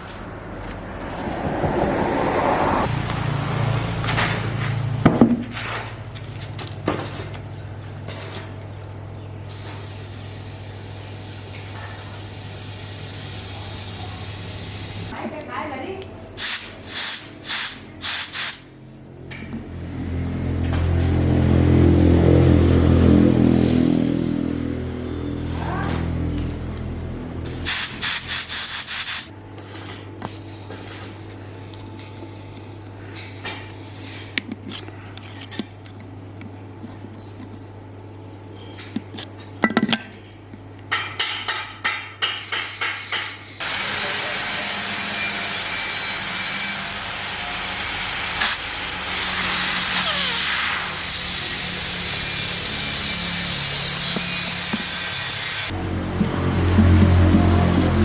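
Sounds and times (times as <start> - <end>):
scraping and rubbing: 0.9 - 2.9.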